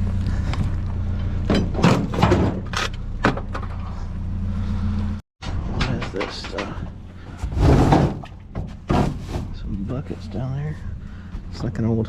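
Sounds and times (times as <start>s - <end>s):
low engine hum: 0.0s - 7.6s, 8.2s - 12.0s
items clattering in dumpster: 1.5s - 4.0s, 5.4s - 9.7s.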